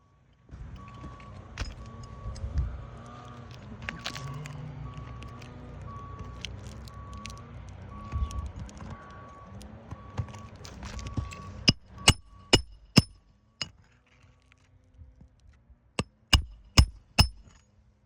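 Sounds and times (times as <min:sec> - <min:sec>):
vehicle reversing beeper: 0:00.0 - 0:13.6
hammer striking nails: 0:11.7 - 0:13.2, 0:16.0 - 0:17.6.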